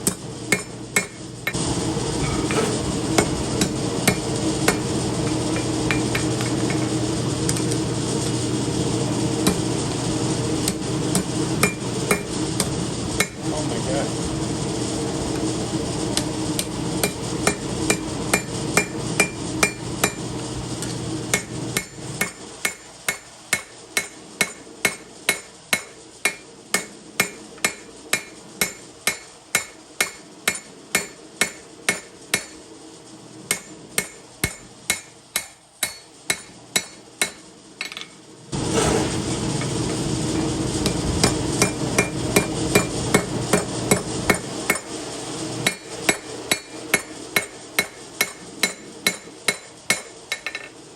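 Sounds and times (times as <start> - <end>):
hammer ringing on anvil: 0.1 - 1.2, 17.0 - 20.2, 21.3 - 32.6, 33.5 - 38.1, 40.8 - 44.9, 45.6 - 50.7.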